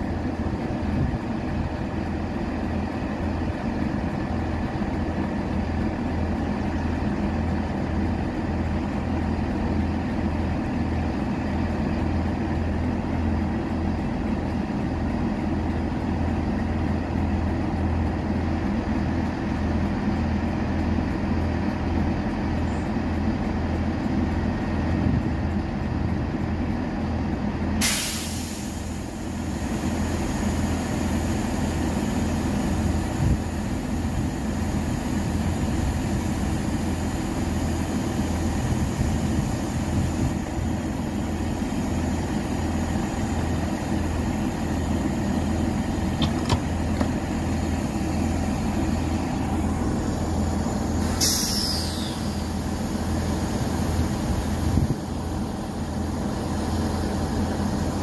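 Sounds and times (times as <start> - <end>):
train engine idling hum: 0.0 - 58.0
air hiss: 27.8 - 41.7, 50.6 - 54.8.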